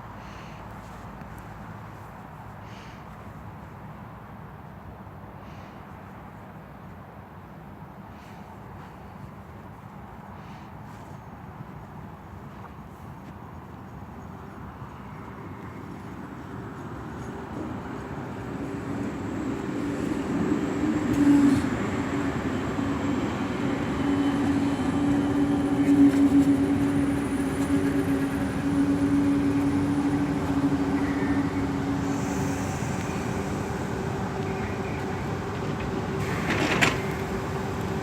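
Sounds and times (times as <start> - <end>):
steady train hum-tone: 0.0 - 38.0
electric train running noise: 15.8 - 38.0.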